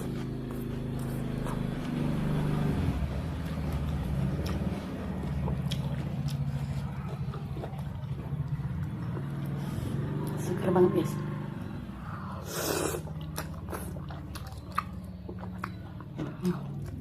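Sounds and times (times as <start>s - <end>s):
low droning hum: 0.0s - 17.0s
person eating noodle soup: 2.8s - 10.2s, 12.0s - 17.0s.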